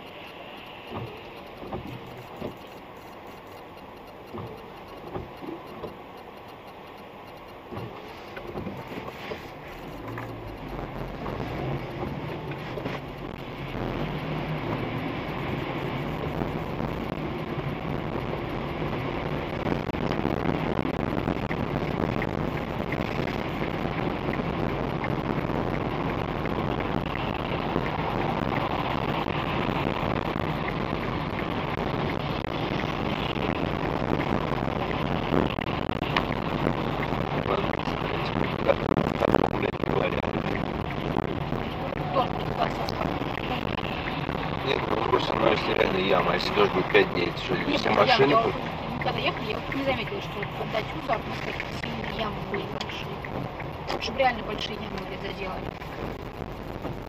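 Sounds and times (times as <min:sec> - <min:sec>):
car engine hum: 0:00.0 - 0:57.0
tyres hissing on wet road: 0:00.0 - 0:57.0.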